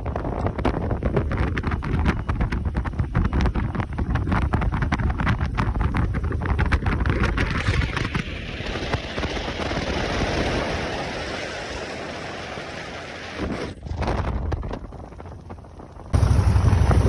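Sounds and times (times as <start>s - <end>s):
wind buffeting microphone: 0.0s - 17.0s
motorcycle engine rumble: 13.9s - 17.0s.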